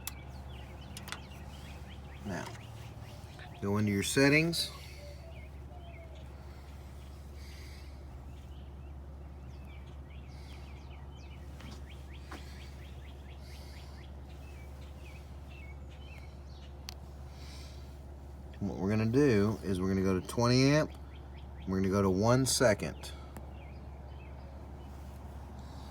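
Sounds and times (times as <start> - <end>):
birds chirping: 0.0 - 25.9
steady low hum: 0.0 - 25.9.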